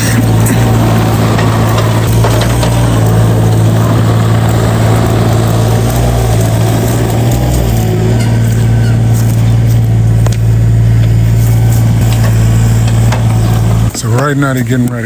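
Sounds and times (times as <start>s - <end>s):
large engine idling: 0.0s - 15.0s.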